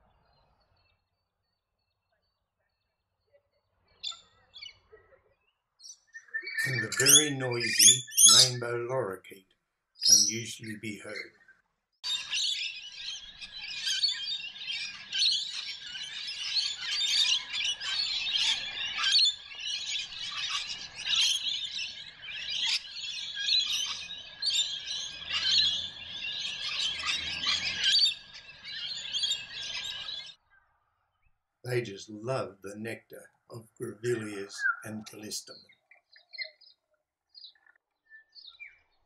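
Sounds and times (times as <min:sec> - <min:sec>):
lorikeets screeching and chattering: 0:05.8 - 0:09.4, 0:10.0 - 0:11.3, 0:12.0 - 0:30.4, 0:31.7 - 0:36.8.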